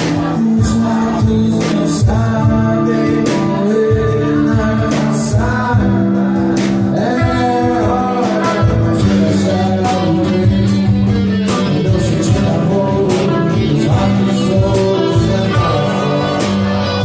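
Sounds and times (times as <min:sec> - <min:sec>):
guitar accompaniment: 0:00.0 - 0:17.0
person singing: 0:00.0 - 0:17.0
steady beat: 0:00.0 - 0:17.0.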